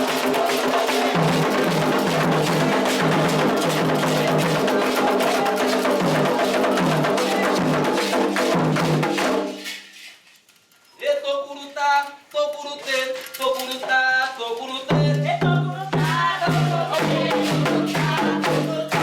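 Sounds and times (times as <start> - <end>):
fast drum rhythm: 0.0 - 9.8, 14.9 - 19.0
wood-block-like percussion: 0.0 - 9.9, 14.9 - 19.0.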